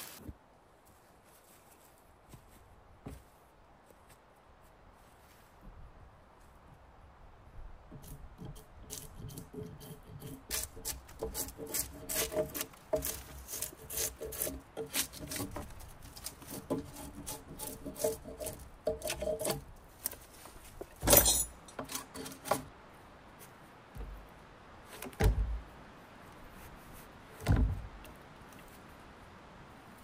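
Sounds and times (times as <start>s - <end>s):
tool scraping wood: 7.9s - 20.2s, 20.8s - 22.7s.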